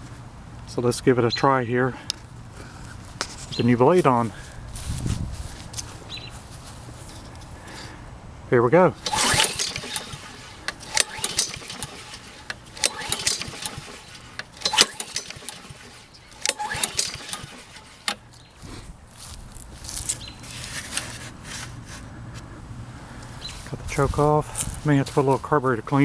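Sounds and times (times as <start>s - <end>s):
recoil starter cord pulls: 9.0s - 18.8s, 20.0s - 22.0s
engine turning over: 9.0s - 19.3s.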